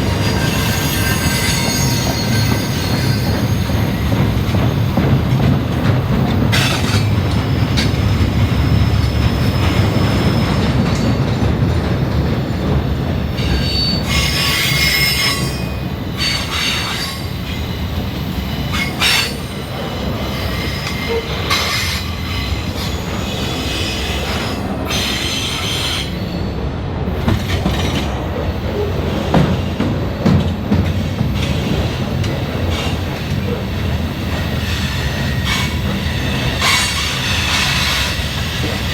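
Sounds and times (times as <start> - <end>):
railroad cars rumbling on rails: 0.0 - 38.9
high-pitched wheel squeal: 0.3 - 4.2, 13.4 - 17.4.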